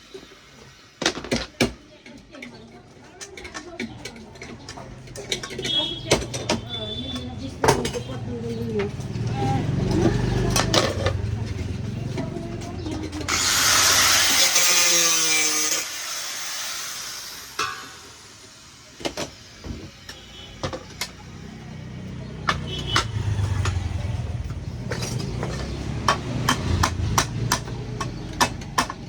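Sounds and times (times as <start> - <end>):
loud hiss: 13.3 - 19.0
scattered knocks: 22.4 - 23.9.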